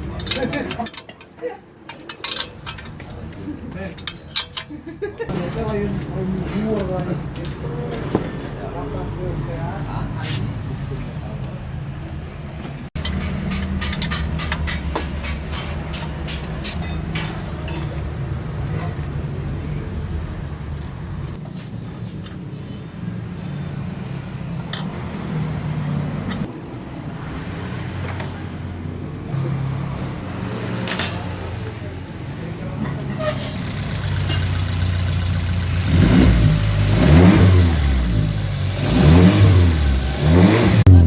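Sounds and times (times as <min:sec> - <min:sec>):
car engine idling: 0:33.5 - 0:41.0.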